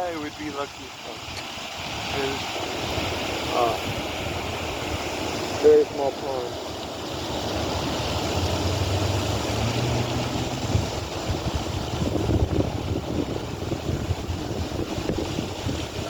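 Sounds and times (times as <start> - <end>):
steady outdoor hiss: 0.0 - 16.0
wind buffeting the microphone: 0.0 - 16.0
low engine-like drone: 7.4 - 11.9.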